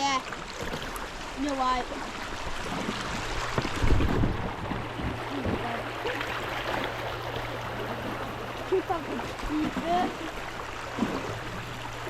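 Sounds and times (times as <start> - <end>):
river water washing around kayak: 0.0 - 12.0
low buffeting: 1.0 - 12.0
wind noise on microphone: 2.6 - 5.8.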